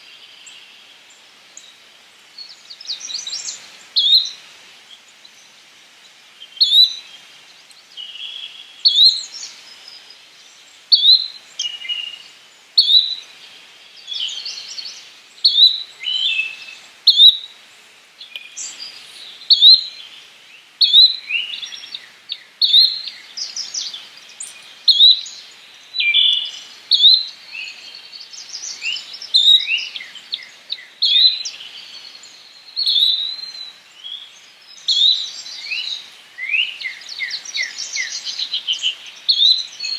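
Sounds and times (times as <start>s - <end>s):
flycatcher calling: 12.8s - 13.3s, 14.0s - 17.5s, 18.2s - 20.1s, 20.8s - 34.2s, 34.8s - 39.9s.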